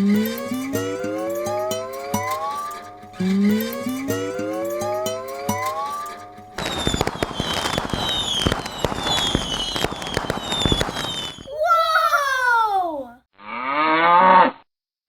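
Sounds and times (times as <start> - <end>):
falling whistles: 6.6 - 11.5
cartoon fireworks crackling and popping: 6.6 - 12.0.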